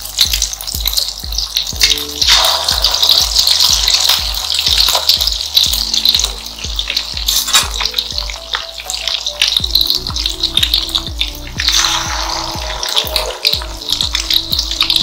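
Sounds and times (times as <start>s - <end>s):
background music with a beat: 0.0s - 15.0s
batter sizzling in oil: 0.0s - 15.0s.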